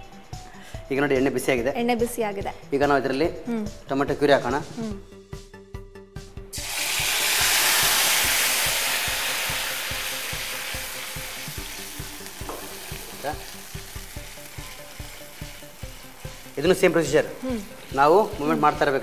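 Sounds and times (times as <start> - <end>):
loud sizzle: 6.5 - 19.0
puree pouring into hot oil: 6.6 - 16.6.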